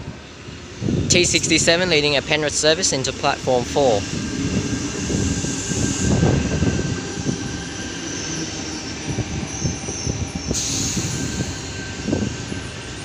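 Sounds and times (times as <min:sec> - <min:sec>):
train approaching: 0:00.0 - 0:13.0
train rumbling on rails: 0:00.0 - 0:13.0
faint wheel squeal: 0:05.4 - 0:13.0.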